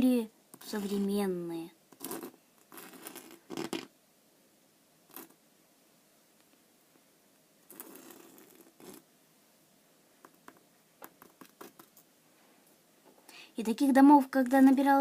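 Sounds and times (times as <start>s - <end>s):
sand scraping on glass: 7.7s - 9.0s.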